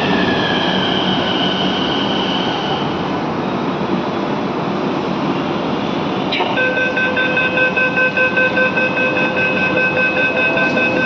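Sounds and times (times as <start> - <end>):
rapid electronic warning beeping: 6.6 - 11.0
train rumble: 9.0 - 11.0.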